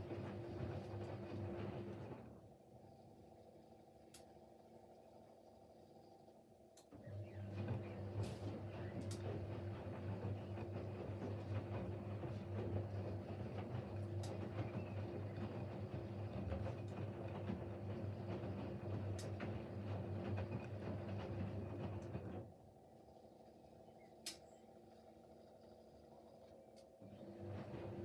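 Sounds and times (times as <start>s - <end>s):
washing machine drum humming: 0.0s - 2.3s, 7.0s - 22.5s, 27.0s - 28.0s.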